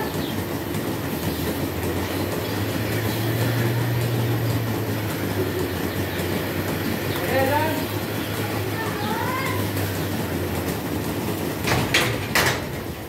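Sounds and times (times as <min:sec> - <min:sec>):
milking machinery rumbling: 0:00.0 - 0:13.0.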